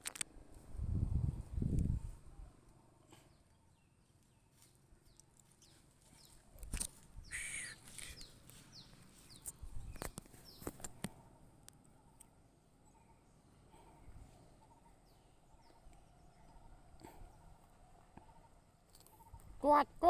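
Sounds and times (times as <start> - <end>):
birds chirping faintly: 1.9 - 20.0
harsh bird call: 7.2 - 8.4.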